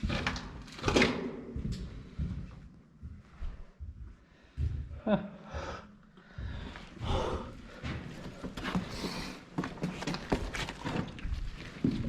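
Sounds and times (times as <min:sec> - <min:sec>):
person breathing hard: 0:04.2 - 0:09.6
footsteps on rocky floor: 0:06.3 - 0:12.0.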